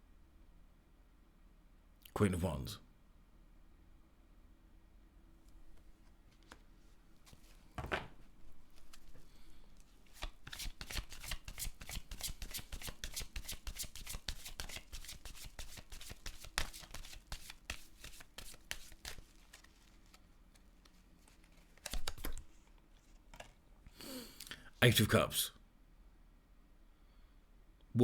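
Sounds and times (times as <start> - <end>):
cards being shuffled: 5.8 - 23.6
card rustle: 8.7 - 23.6.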